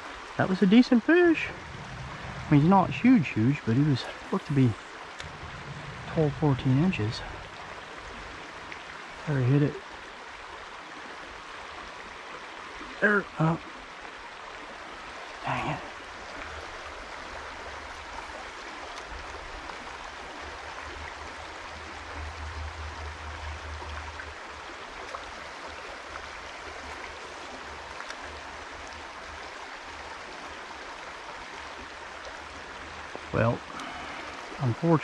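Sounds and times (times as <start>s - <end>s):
creek water rushing: 0.0s - 35.0s
low rumble: 1.3s - 9.4s, 20.5s - 25.5s
faint ticks: 26.8s - 29.0s.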